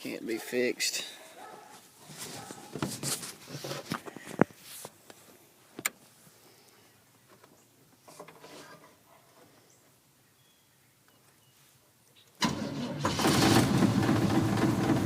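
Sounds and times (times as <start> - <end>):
rustling and handling noises: 1.2 - 6.3.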